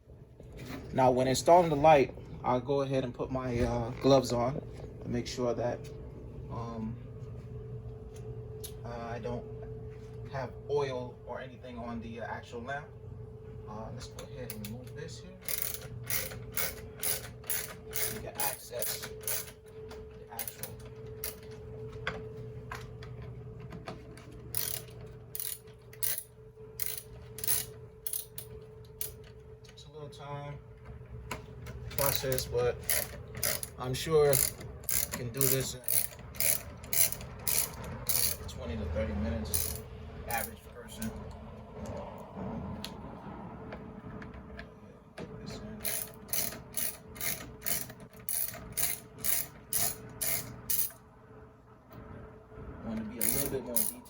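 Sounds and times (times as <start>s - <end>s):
steady low hum: 0.0s - 54.0s
ratchet wrench clicking: 15.4s - 19.6s, 24.5s - 29.2s, 32.0s - 38.5s, 39.5s - 39.8s, 45.8s - 51.0s, 53.2s - 54.0s.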